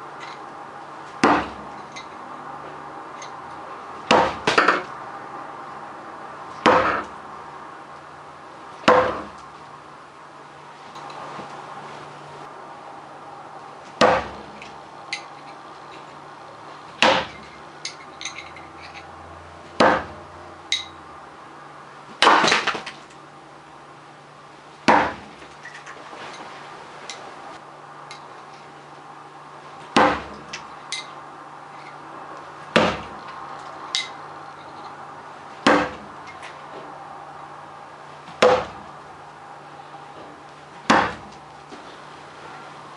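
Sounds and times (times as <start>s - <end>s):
throwing spikes striking a target: 4.0s - 4.9s, 6.5s - 7.1s, 13.9s - 15.3s, 17.0s - 17.6s, 19.7s - 20.2s, 22.2s - 23.0s, 24.8s - 25.6s, 29.9s - 31.1s, 32.7s - 33.3s, 35.6s - 36.5s, 38.3s - 38.9s, 40.2s - 41.4s
faint metallic clinks: 17.4s - 19.1s.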